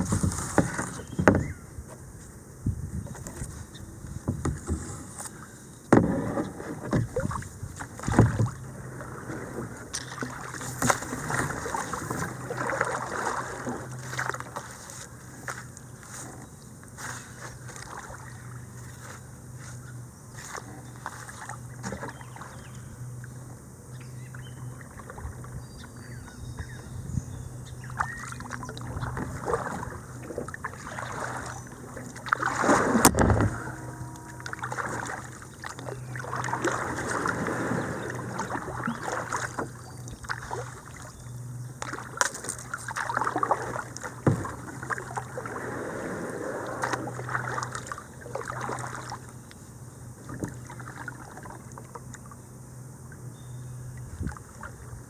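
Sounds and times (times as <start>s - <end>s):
knock or scrape on kayak: 0.0s - 1.5s, 5.9s - 7.4s, 32.6s - 33.9s, 44.2s - 44.6s
paddle splashes: 0.0s - 1.6s, 3.0s - 23.4s, 24.2s - 25.6s, 27.7s - 52.4s, 53.9s - 55.0s
water swishing along hull: 0.0s - 55.0s.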